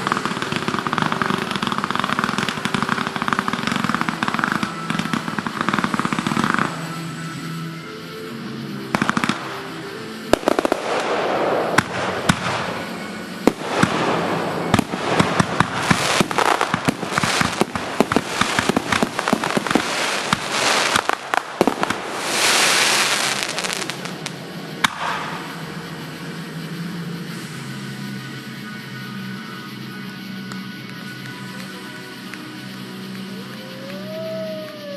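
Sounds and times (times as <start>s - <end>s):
fireworks bangs and crackles: 0.0s - 7.6s, 8.7s - 28.4s
fireworks hissing crackle: 0.0s - 34.9s.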